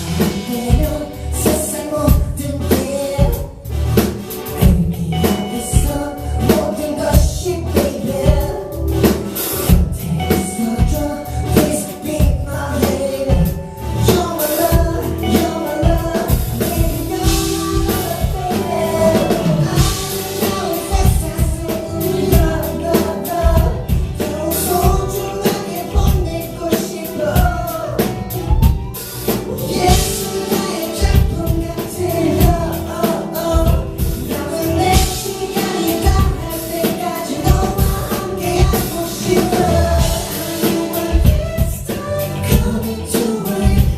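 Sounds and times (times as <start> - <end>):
live pop music: 0.0 - 43.9
person singing: 0.0 - 43.9
drum beat: 13.2 - 43.9.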